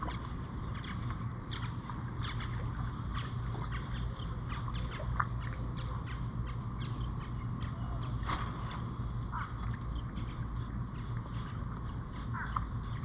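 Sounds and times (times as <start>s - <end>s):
steady low rumble: 0.0s - 13.0s
birds chirping and squawking: 9.3s - 13.0s.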